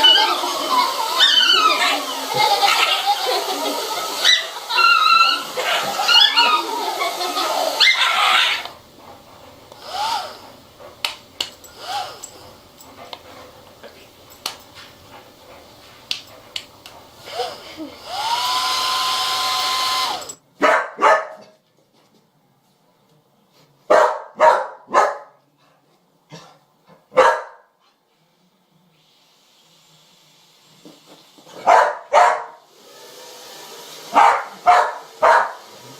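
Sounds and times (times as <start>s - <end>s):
dog whining and yelping: 0.0s - 3.0s, 4.1s - 8.8s
hair dryer blowing: 0.0s - 20.4s, 32.6s - 35.9s
dog barking: 20.6s - 21.6s, 23.9s - 25.4s, 27.1s - 27.7s, 31.6s - 32.6s, 34.1s - 35.6s.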